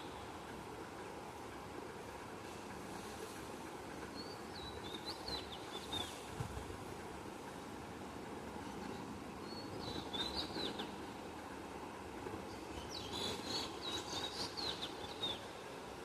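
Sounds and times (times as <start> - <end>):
steady low background noise: 0.0 - 16.0
small birds chirping: 8.9 - 11.0, 12.5 - 15.5.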